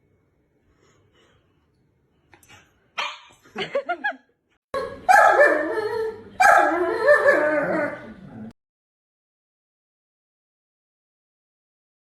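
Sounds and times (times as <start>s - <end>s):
dog howling with wavering pitch: 5.2s - 8.2s.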